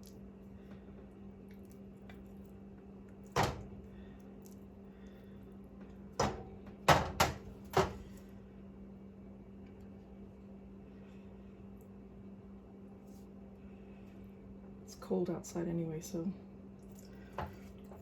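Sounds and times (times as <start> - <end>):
steady low hum: 0.0 - 18.0
kitchen knocks and clatter: 3.4 - 3.7, 6.2 - 8.0, 17.4 - 18.0.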